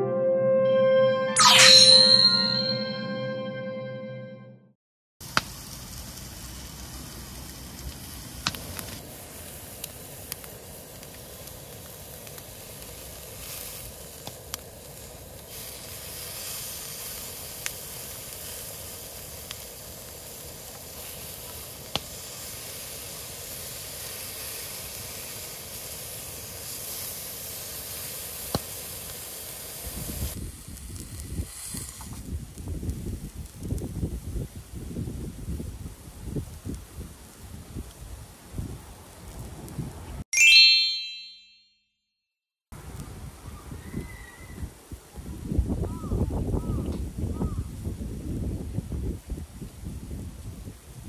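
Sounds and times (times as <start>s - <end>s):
food sizzling in frying pan: 14.8s - 33.1s.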